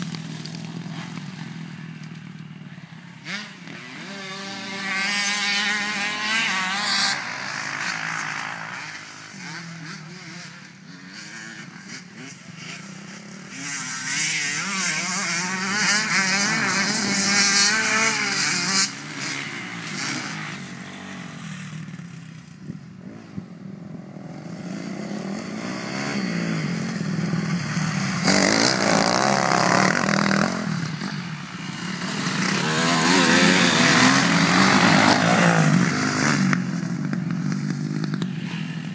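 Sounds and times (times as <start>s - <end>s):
motorcycle engines revving: 0.0s - 38.9s.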